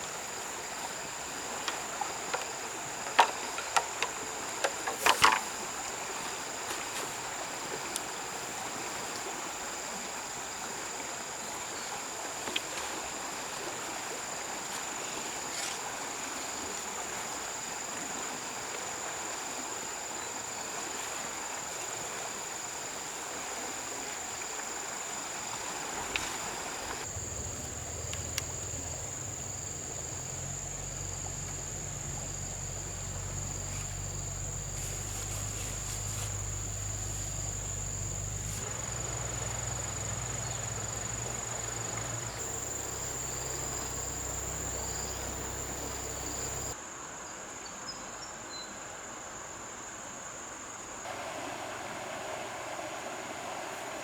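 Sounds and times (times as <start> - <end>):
insects chirring: 0.0 - 12.1, 14.0 - 46.8
running water: 0.0 - 46.8
low hum: 27.1 - 46.7.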